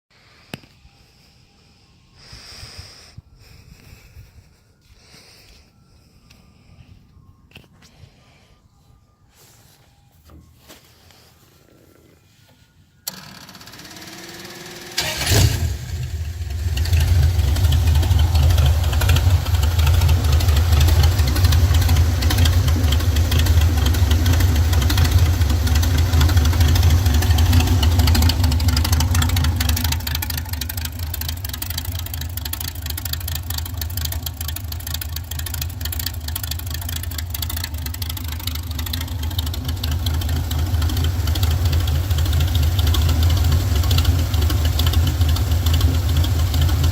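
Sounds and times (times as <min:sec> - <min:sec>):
starter motor cranking: 0:13.0 - 0:46.9
car engine running: 0:13.1 - 0:46.9.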